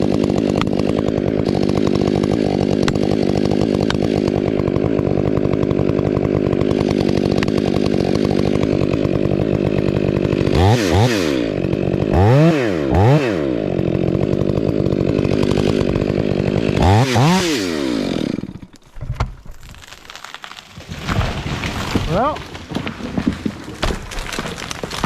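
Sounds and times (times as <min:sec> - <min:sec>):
chainsaw engine revving: 0:00.0 - 0:18.8.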